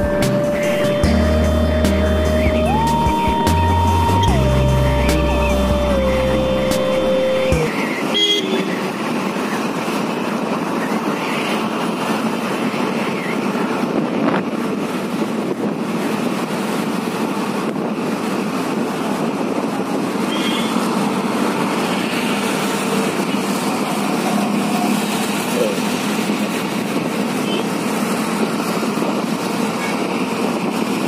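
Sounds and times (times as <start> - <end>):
road and traffic noise: 0.0 - 31.0
vehicle horn toot: 2.3 - 9.0, 20.3 - 20.8.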